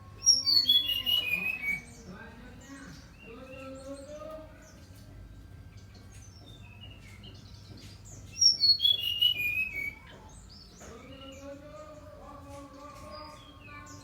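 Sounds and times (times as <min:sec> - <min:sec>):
soft bird chirps: 0:00.0 - 0:11.8
bird whistled song: 0:00.1 - 0:02.1, 0:08.3 - 0:11.6.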